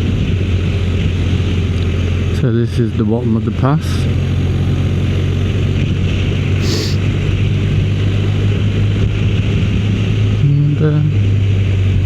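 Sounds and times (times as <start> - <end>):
short hiss: 6.6 - 7.0.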